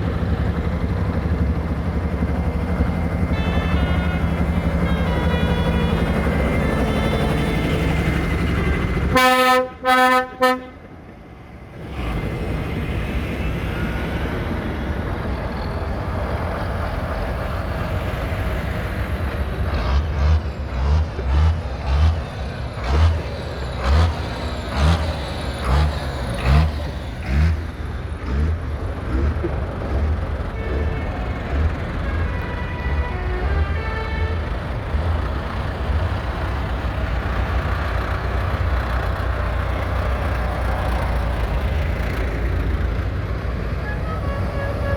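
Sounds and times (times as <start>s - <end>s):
tractor diesel engines running: 0.0s - 44.9s
horn tooting: 3.3s - 8.0s, 8.6s - 10.8s, 30.5s - 34.9s, 43.6s - 44.9s.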